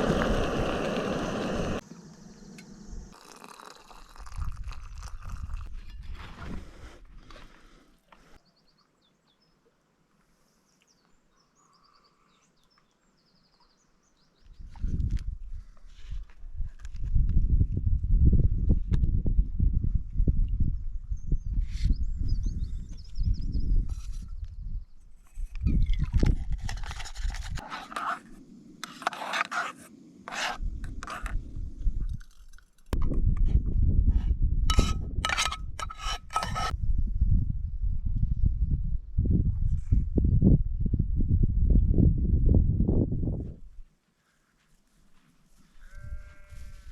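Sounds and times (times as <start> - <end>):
scraping and rubbing noises: 23.8 - 24.4, 25.2 - 33.0, 34.1 - 36.8
rustle: 43.7 - 46.9.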